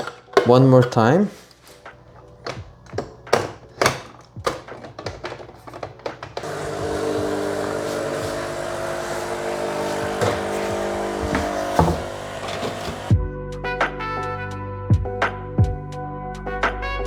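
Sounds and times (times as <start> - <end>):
clicks and knocks from handling: 0.0 - 1.0, 1.8 - 13.1
coffee machine pump humming: 2.0 - 13.2.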